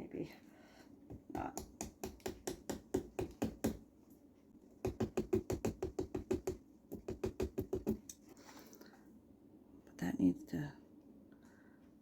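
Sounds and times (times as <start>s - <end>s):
carving tool knocking into pumpkin: 1.1s - 3.8s, 4.8s - 8.1s.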